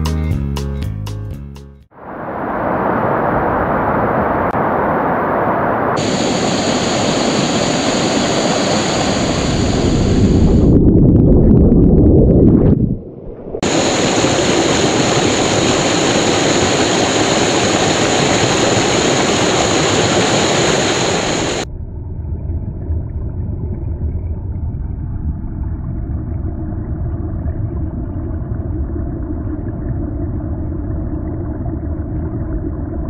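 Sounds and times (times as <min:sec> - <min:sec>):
muffled low rumble: 0:02.0 - 0:33.0
stream water flowing: 0:06.0 - 0:09.8, 0:13.6 - 0:21.6.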